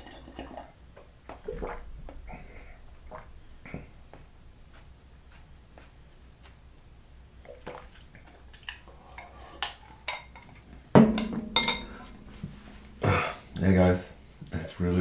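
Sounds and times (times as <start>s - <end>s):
liquid sounds: 0.0s - 4.9s
spoon clinking and scraping in bowl: 9.2s - 13.0s.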